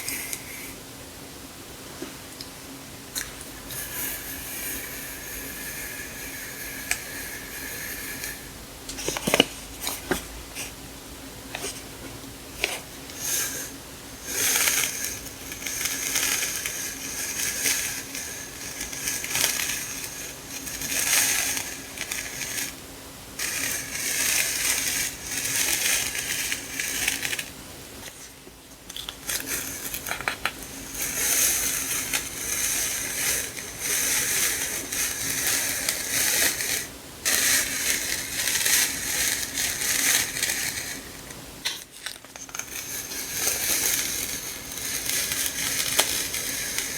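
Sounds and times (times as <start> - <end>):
faint steady hum: 0.0 - 46.9
plastic packaging crinkling: 23.4 - 46.9.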